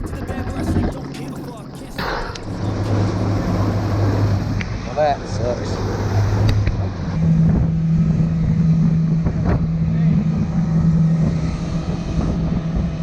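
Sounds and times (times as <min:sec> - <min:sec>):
jet ski engine running: 0:00.0 - 0:13.0
wind on microphone: 0:05.5 - 0:13.0.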